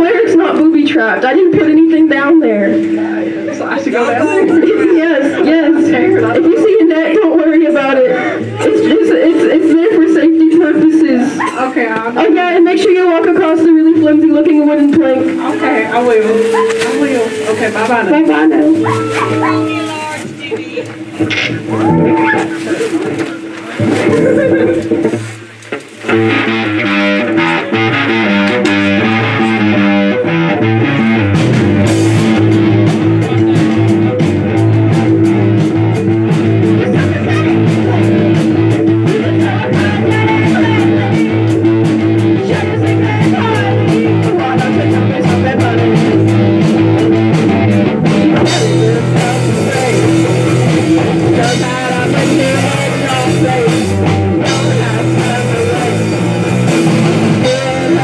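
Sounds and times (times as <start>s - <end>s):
rock band playing live: 7.7s - 58.0s
drum kit: 14.7s - 29.3s, 30.6s - 58.0s.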